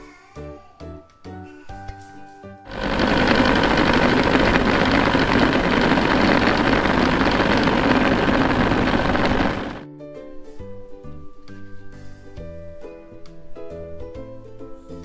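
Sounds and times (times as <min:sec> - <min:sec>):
kitchen appliance motor running: 0:02.7 - 0:09.8.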